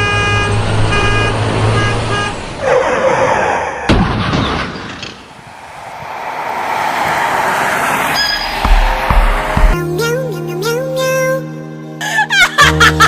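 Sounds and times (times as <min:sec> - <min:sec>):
vehicle horn honking: 0:00.0 - 0:02.5
rush of noise: 0:05.1 - 0:09.8.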